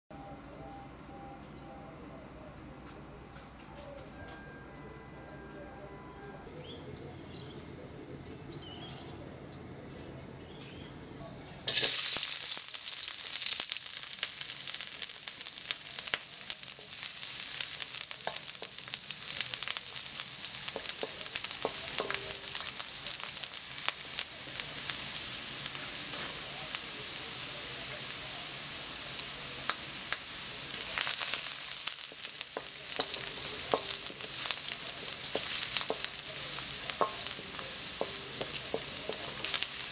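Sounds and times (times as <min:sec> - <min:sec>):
onion frying with crackles: 0:11.7 - 0:39.9
wooden spatula stirring: 0:32.1 - 0:39.9.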